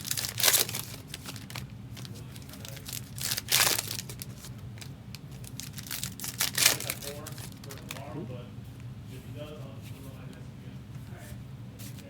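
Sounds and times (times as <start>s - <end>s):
plastic packaging tearing and crinkling: 0.0s - 8.1s.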